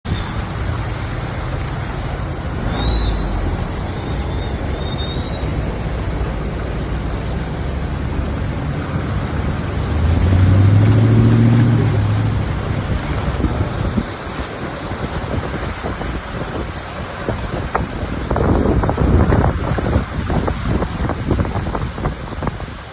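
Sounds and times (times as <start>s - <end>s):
heavy rain pouring: 0.0s - 22.9s
vehicle engine passing: 0.3s - 16.3s.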